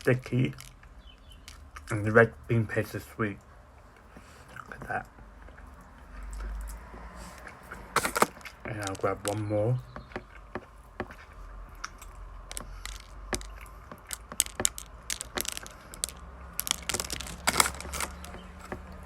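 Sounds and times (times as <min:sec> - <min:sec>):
sesame seeds crunching: 0:00.0 - 0:19.0
close chewing with wet mouth clicks: 0:03.4 - 0:08.7, 0:09.8 - 0:19.0.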